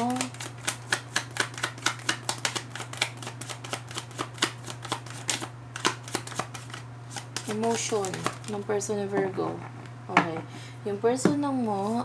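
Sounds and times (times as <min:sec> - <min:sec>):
cards being shuffled: 0:00.0 - 0:08.6.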